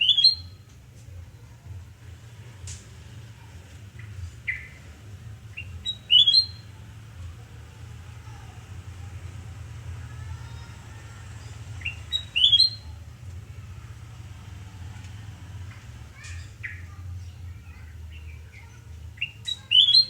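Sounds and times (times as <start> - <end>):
bulbul singing: 0.0 - 0.6, 4.0 - 6.8, 10.4 - 13.2, 15.7 - 20.0.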